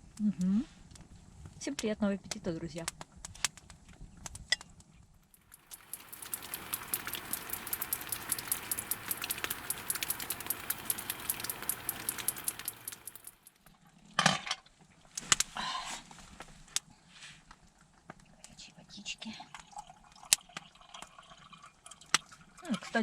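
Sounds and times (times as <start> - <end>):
wood fire crackling: 5.3 - 13.7.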